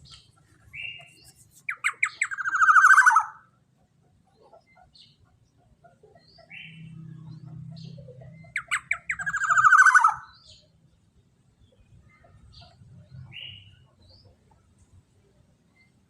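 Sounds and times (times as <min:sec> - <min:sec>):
bird calling: 0:00.0 - 0:03.6, 0:05.9 - 0:10.7
fast rasping bird call: 0:01.7 - 0:03.4, 0:08.6 - 0:10.3.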